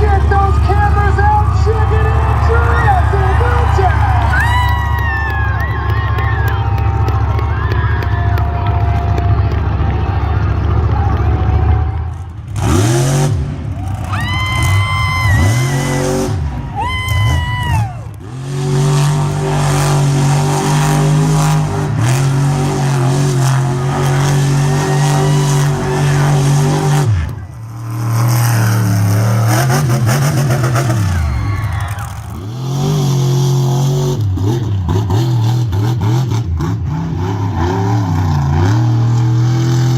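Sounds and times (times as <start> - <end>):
monster truck engine revving: 0.0 - 39.9.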